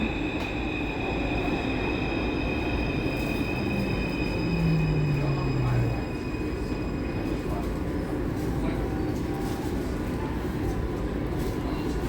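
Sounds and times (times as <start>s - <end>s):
metro train rumble and whine: 0.0s - 12.0s
low hum sliding down in pitch: 3.3s - 6.7s.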